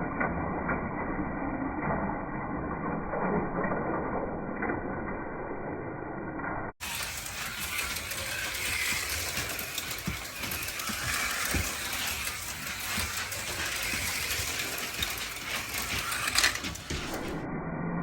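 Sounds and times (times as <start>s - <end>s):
slot car motors whirring and rattling: 6.8s - 17.4s.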